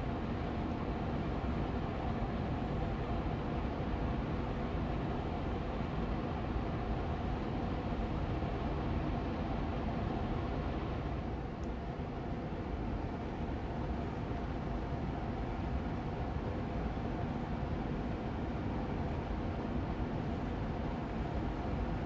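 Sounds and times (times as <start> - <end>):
air purifier fan running: 0.0 - 22.0.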